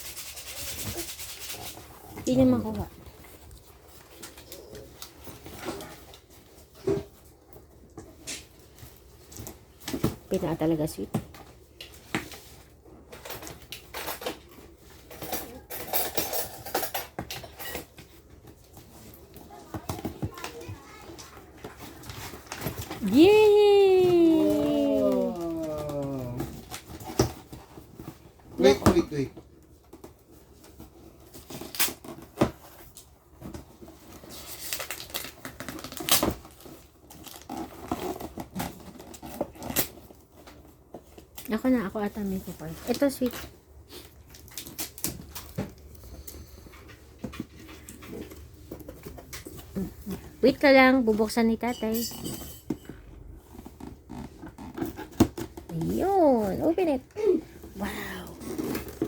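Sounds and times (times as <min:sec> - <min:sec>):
wrapping paper rustling: 0:18.2 - 0:51.0
packaging clicking and rustling: 0:29.4 - 0:41.5.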